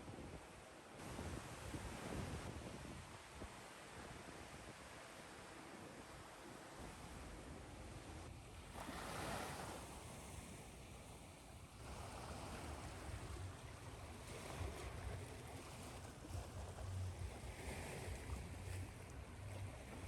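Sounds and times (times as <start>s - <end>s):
ocean waves washing in: 8.2s - 20.0s.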